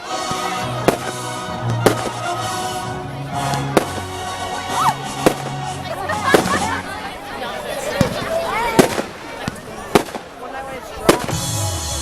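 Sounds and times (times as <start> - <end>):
music with sustained notes: 0.0 - 7.2, 11.3 - 12.0
firework bangs: 0.1 - 2.7, 3.4 - 6.9, 7.9 - 11.5.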